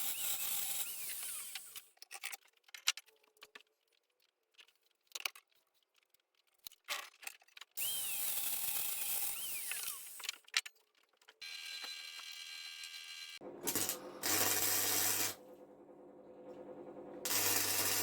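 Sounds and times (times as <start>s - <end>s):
power tool whining on steel: 7.8s - 10.3s, 11.4s - 15.4s, 17.2s - 18.0s.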